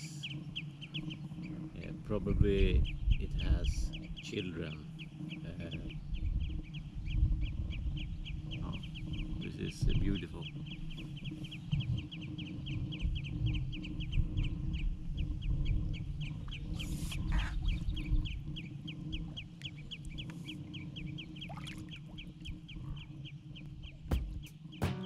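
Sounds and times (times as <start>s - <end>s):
low rumble: 0.0s - 24.6s.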